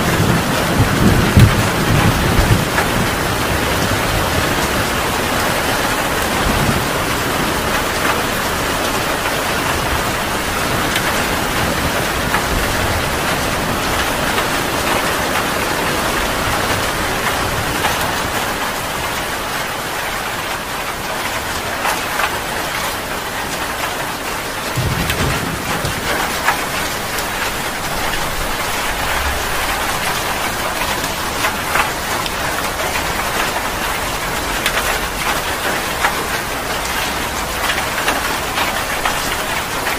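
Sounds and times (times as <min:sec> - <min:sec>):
thunder rumbling: 0:00.0 - 0:18.4, 0:24.6 - 0:36.3
heavy rain pouring: 0:00.0 - 0:39.9.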